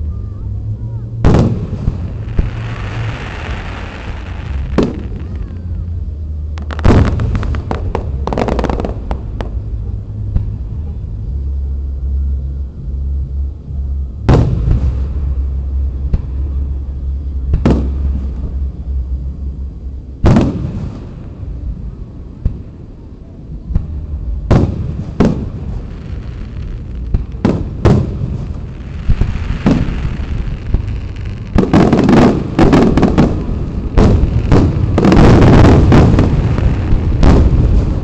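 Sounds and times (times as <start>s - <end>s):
firework crackling: 0.0s - 11.6s, 23.8s - 38.0s
low rumble: 0.0s - 38.0s.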